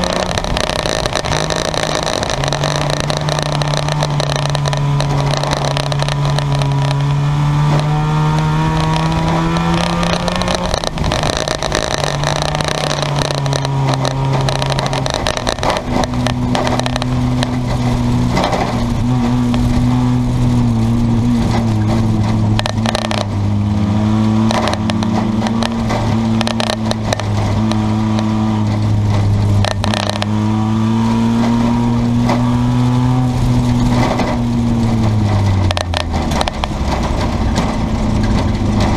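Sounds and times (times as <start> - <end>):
sharp clicks: 0.0 - 18.8, 24.4 - 30.4
car engines droning: 0.0 - 38.9.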